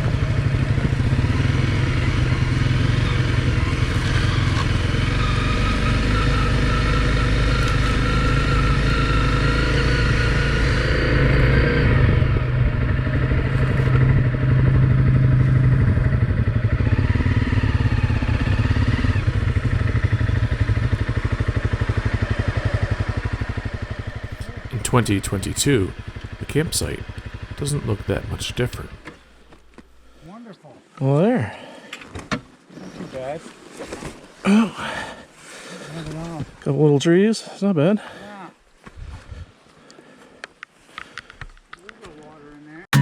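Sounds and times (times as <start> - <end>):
motorcycle engine running: 0.0 - 30.3.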